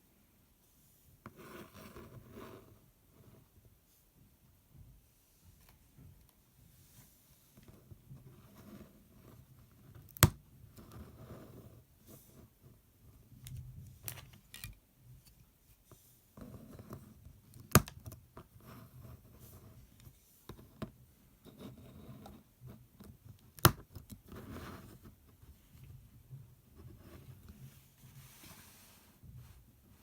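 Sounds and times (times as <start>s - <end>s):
soft rustling: 24.4s - 30.0s.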